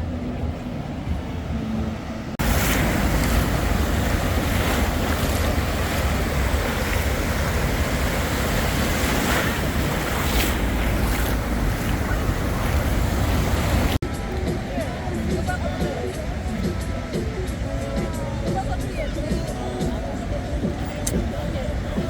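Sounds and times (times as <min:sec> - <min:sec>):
ocean surf: 0:00.0 - 0:22.0
wind blowing on microphone: 0:01.0 - 0:14.0.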